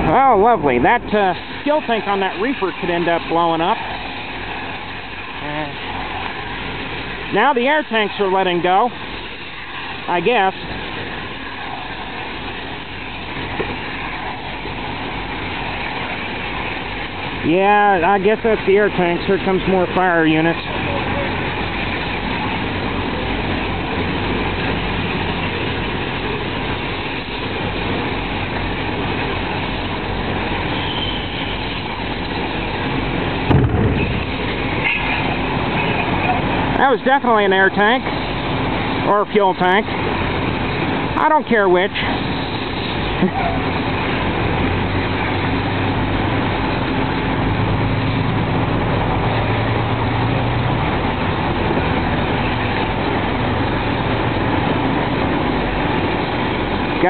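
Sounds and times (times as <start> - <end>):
truck engines rumbling: 0.0 - 57.0
deep boom of tank bursting: 33.4 - 34.5.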